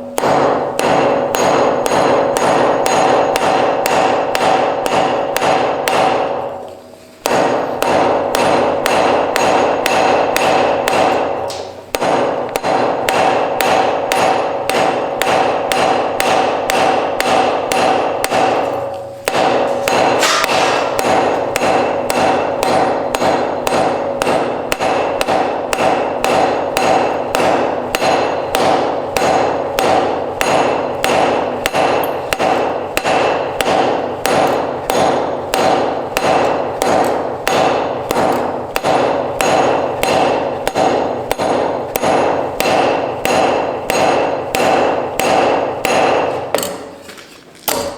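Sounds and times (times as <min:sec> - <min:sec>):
hammer striking iron on anvil: 0:00.0 - 0:47.0, 0:47.7 - 0:47.9.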